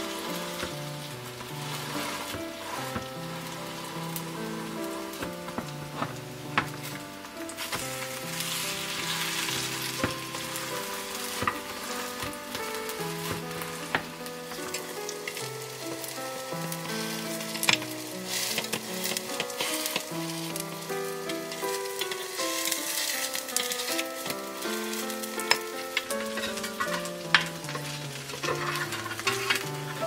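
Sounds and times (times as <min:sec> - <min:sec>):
pancakes sizzling in oil: 0:00.0 - 0:30.0
soft melody: 0:00.0 - 0:30.0
metal spatula tapping pan: 0:21.9 - 0:30.0.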